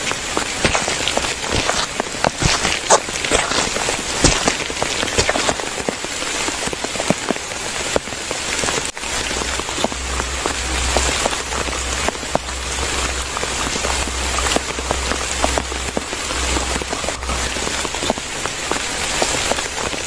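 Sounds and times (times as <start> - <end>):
rain falling: 0.0 - 20.0
low rumble: 8.9 - 20.0.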